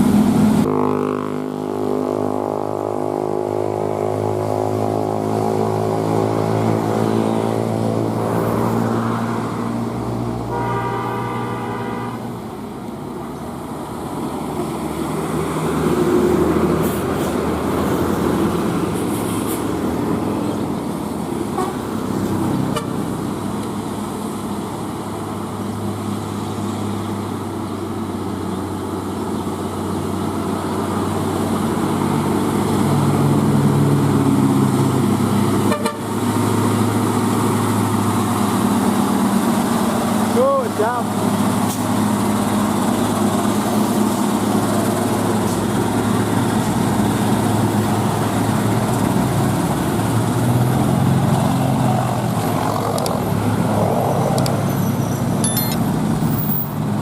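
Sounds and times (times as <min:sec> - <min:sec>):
heavy vehicle engines running: 0:00.0 - 0:57.0
horns honking: 0:10.5 - 0:12.3, 0:21.5 - 0:21.8, 0:22.7 - 0:23.0, 0:35.6 - 0:36.1.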